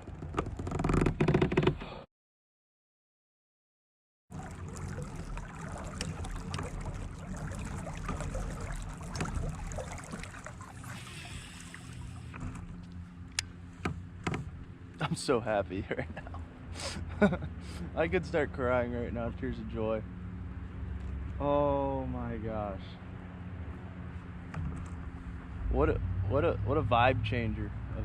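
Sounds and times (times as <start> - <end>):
water lapping against kayak: 4.3 - 14.7.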